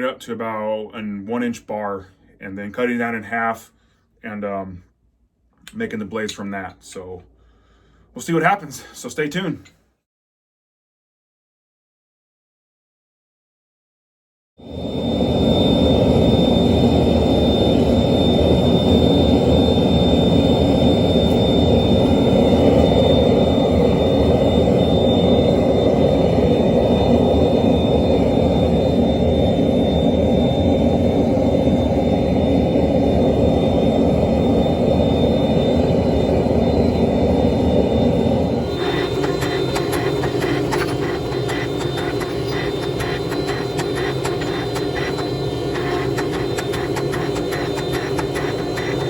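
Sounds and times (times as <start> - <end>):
high whine: 14.6 - 49.0
forge burner rushing: 14.7 - 49.0.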